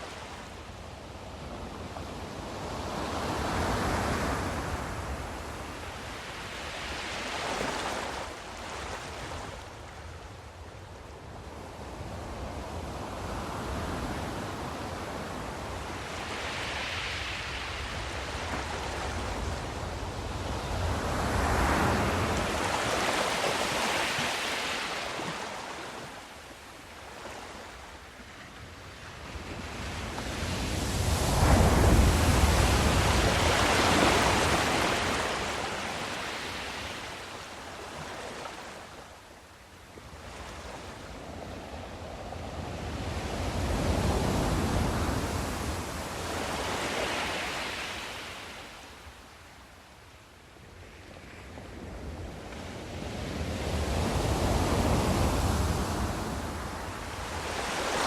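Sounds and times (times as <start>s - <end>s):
sea waves washing: 30.0s - 37.3s.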